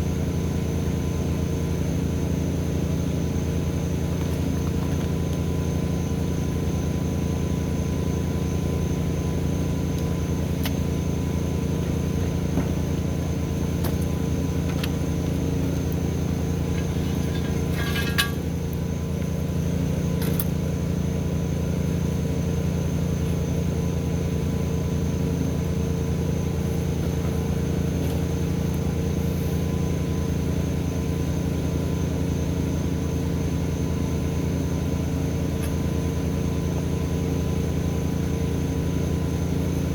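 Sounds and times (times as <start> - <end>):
engine running steadily: 0.0 - 39.9
short metallic ring: 16.7 - 18.6.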